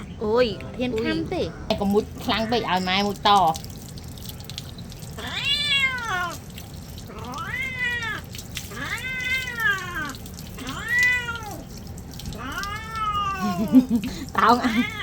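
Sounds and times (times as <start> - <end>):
cat meowing: 5.2 - 6.4, 7.1 - 13.8, 14.4 - 15.0.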